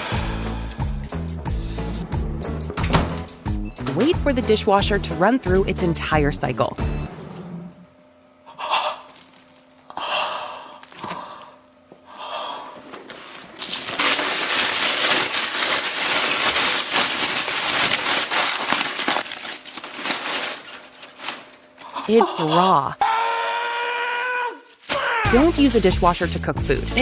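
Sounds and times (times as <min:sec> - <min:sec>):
aluminium foil crinkling: 0:09.1 - 0:09.8, 0:13.0 - 0:22.2.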